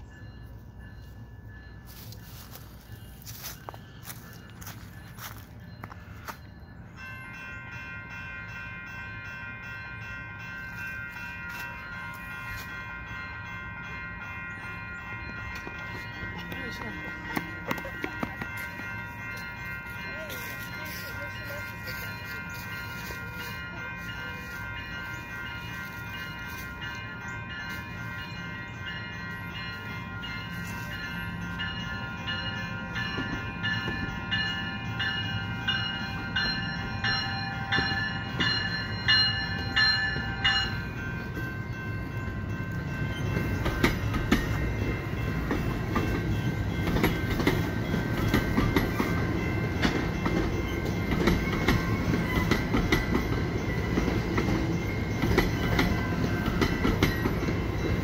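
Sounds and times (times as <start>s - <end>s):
railway crossing bell ringing: 0.0s - 58.0s
train wheels rumbling on rails: 0.0s - 58.0s.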